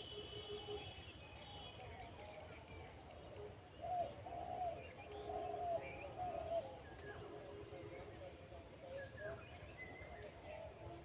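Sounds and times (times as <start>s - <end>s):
birds cooing: 3.8s - 6.8s.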